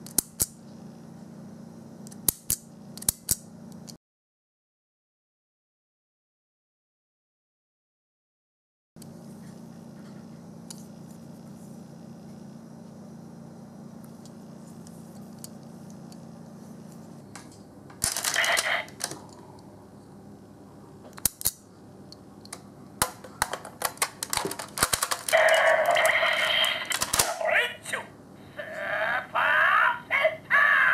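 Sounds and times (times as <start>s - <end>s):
faint steady hum: 0.0s - 4.0s, 9.0s - 30.9s
plastic toy clicks and rattles: 18.0s - 19.2s, 23.0s - 27.4s.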